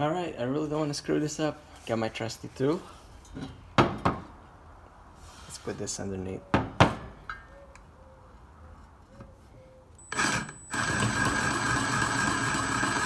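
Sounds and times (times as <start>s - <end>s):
power tool high whine: 10.0s - 13.0s.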